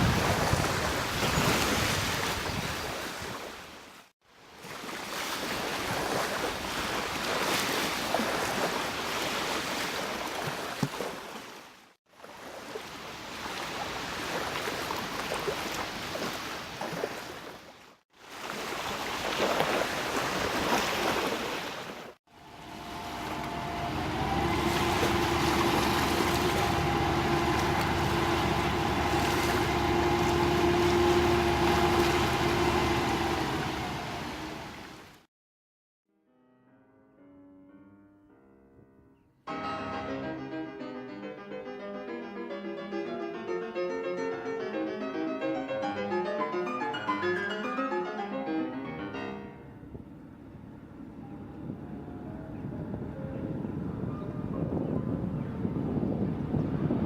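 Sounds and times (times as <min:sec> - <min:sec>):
wind buffeting microphone: 0:00.0 - 0:03.3, 0:22.5 - 0:34.8, 0:49.8 - 0:57.0
rushing water: 0:00.0 - 0:35.3
steady engine drone: 0:22.4 - 0:34.9, 0:49.9 - 0:53.6.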